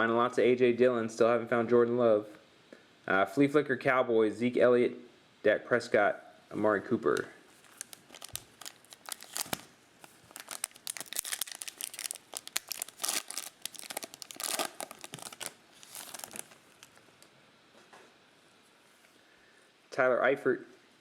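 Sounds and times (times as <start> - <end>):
plastic wrapper crinkling and tearing: 7.1 - 17.3.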